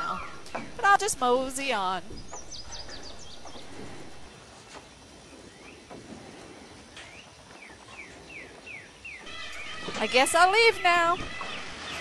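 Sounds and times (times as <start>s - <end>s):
faint outdoor background noise: 0.0s - 12.0s
bird chirping falling notes: 8.7s - 12.0s.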